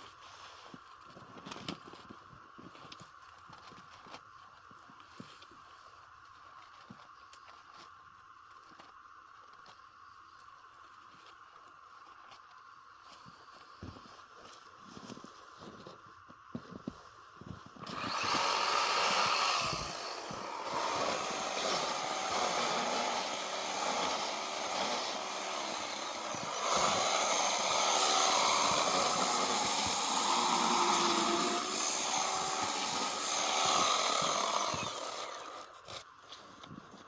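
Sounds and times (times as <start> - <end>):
chainsaw cutting snow: 17.8 - 36.0.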